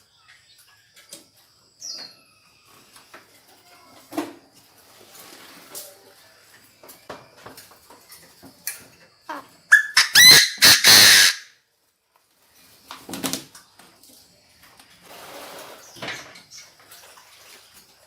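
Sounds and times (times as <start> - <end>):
francolin crowing: 9.3 - 11.5.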